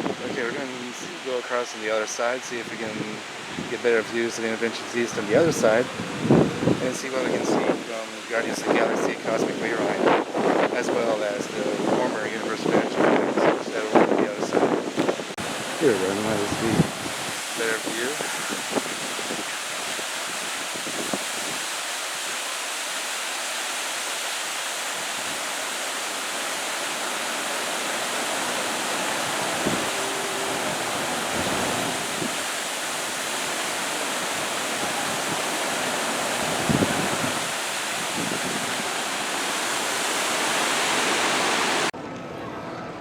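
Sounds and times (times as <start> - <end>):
running splashing water: 15.4 - 41.9.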